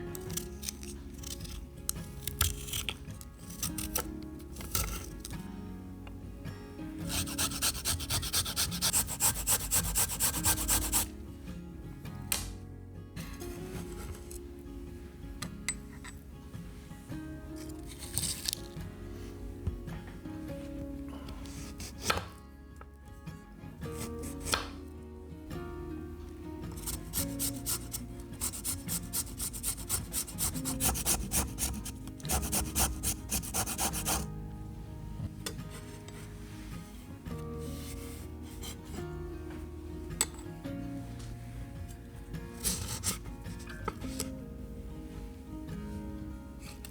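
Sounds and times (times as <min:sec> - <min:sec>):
soft background music: 0:00.0 - 0:46.9
food rasping on hand grater: 0:00.3 - 0:01.6, 0:07.1 - 0:11.1, 0:26.8 - 0:34.3.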